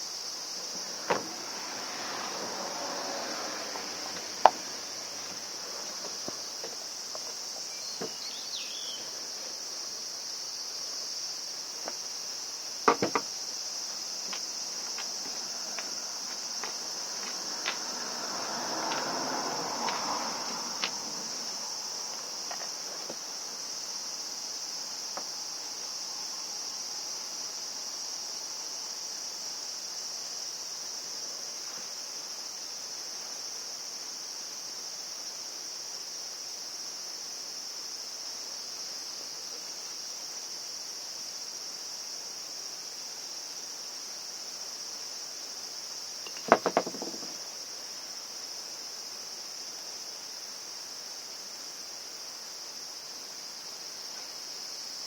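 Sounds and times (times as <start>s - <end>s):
crickets droning: 0.0s - 55.0s
light clicks and knocks: 12.9s - 13.3s, 46.3s - 47.4s.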